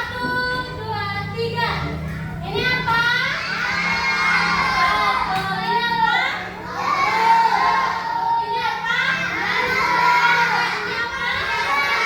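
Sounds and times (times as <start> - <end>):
children singing: 3.4 - 5.3, 6.5 - 12.0.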